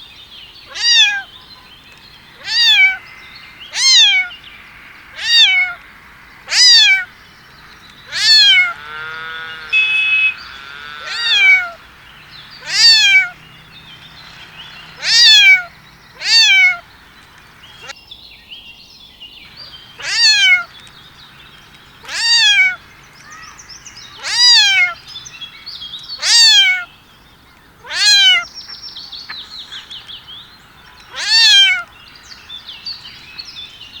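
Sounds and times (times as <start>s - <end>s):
cat meowing: 0.7s - 1.3s, 2.4s - 3.0s, 3.8s - 4.3s, 5.2s - 5.8s, 6.5s - 7.1s, 8.1s - 11.8s, 12.6s - 13.4s, 15.0s - 16.8s, 20.0s - 20.7s, 22.1s - 23.5s, 24.2s - 25.0s, 26.2s - 26.9s, 27.8s - 28.5s, 31.1s - 31.9s.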